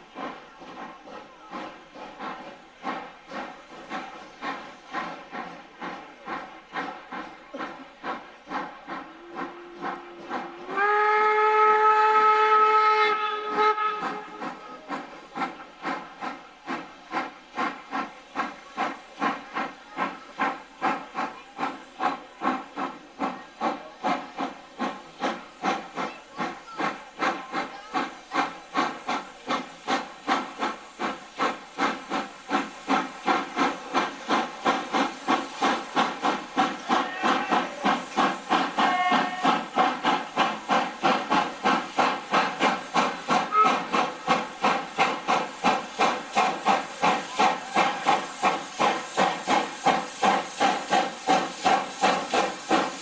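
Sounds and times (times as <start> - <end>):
locomotive exhaust chuffs: 0.1 - 53.0
steam locomotive whistle: 9.0 - 14.8, 36.8 - 40.0, 43.4 - 44.2, 47.4 - 48.4.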